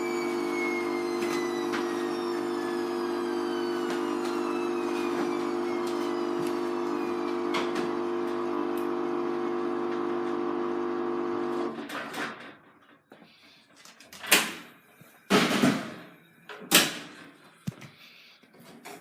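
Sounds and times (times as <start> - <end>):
washing machine motor hum: 0.0 - 11.8.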